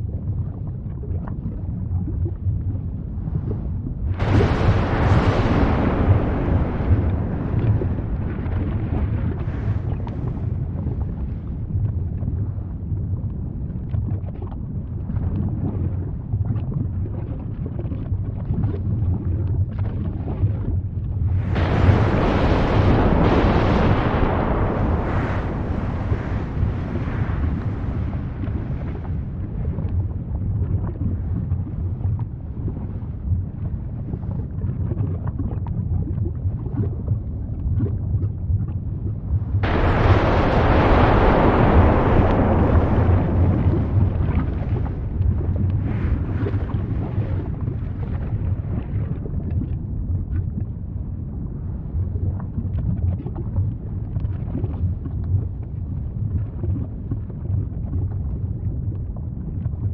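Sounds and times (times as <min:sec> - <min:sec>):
volcano rumbling deeply: 0:00.0 - 0:59.9
faint crackles: 0:03.2 - 0:50.8.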